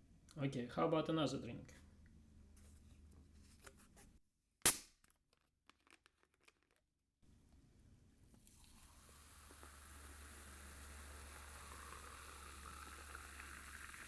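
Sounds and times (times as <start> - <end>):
soda fizz crackling: 8.4 - 14.0.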